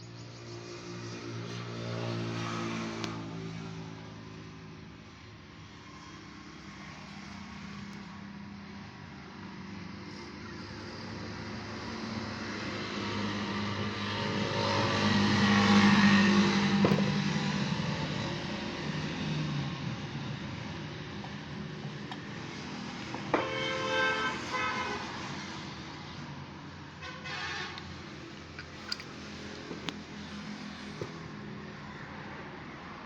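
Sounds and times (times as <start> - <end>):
vehicle passing by: 0.4 - 4.7, 5.8 - 20.7.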